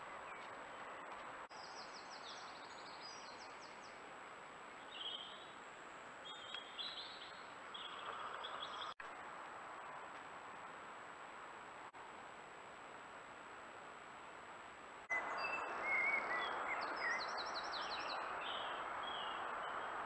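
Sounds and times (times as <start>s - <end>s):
birds trilling and chirping: 6.2s - 9.0s.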